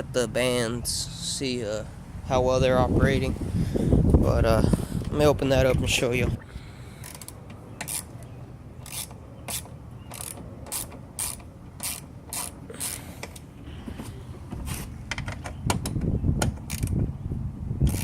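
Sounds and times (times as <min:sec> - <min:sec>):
ratchet wrench clicking: 0:07.0 - 0:08.1, 0:08.8 - 0:13.4, 0:16.7 - 0:17.0.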